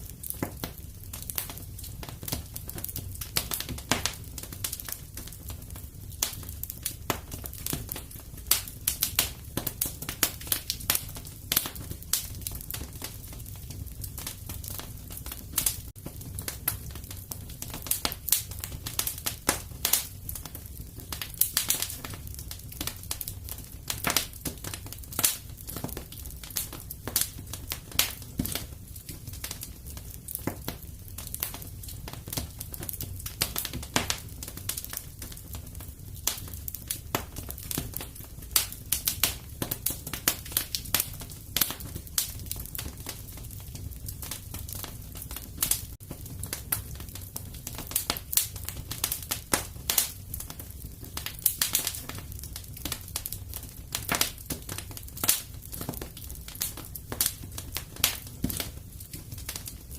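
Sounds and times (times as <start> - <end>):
fire crackling and snapping: 0.0 - 59.9
low rumble of flames: 0.0 - 59.9.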